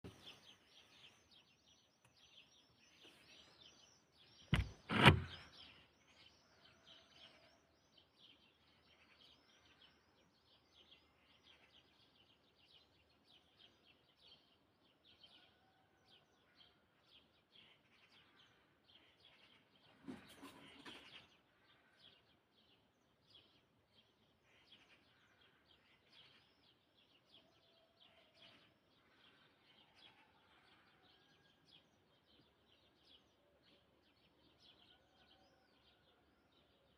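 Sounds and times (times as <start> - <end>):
birds chirping and twittering: 0.0 - 36.9
rustling thump: 4.5 - 5.4.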